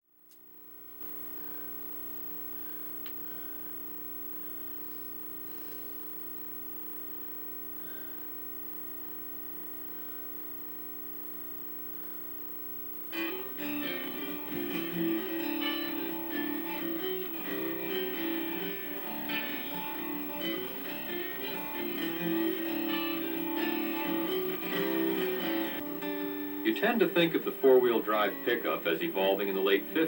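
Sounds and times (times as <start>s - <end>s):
steady tonal hum: 0.6s - 30.0s
guitar music: 13.1s - 30.0s.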